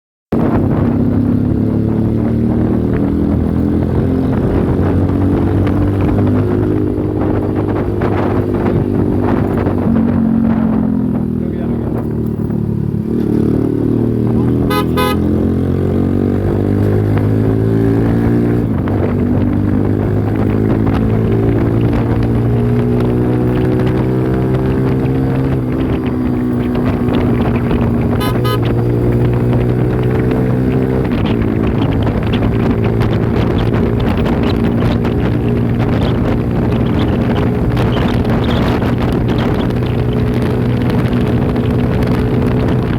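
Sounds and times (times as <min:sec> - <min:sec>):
motorcycle engine accelerating: 0:00.3 - 0:42.9
wind noise: 0:00.3 - 0:42.9
motorcycle horn toot: 0:14.5 - 0:15.5, 0:28.0 - 0:29.0.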